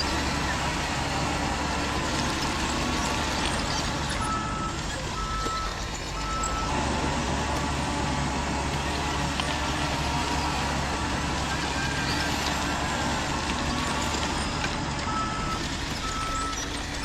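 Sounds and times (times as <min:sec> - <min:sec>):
radio-controlled truck running: 0:00.0 - 0:17.0
reversing beeps: 0:02.3 - 0:06.7, 0:11.0 - 0:17.0.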